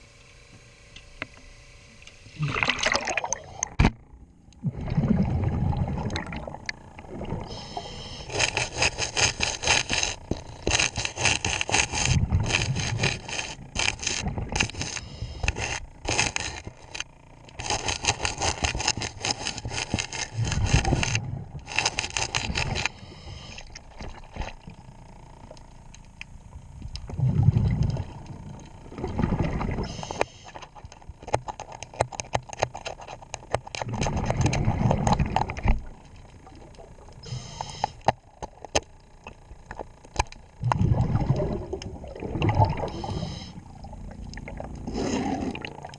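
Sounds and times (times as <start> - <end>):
regulator bubbles rushing: 2.4 - 3.7, 4.6 - 7.5, 27.1 - 29.9, 40.6 - 45.9
metal scraper rasping underwater: 8.2 - 16.7, 17.6 - 23.0.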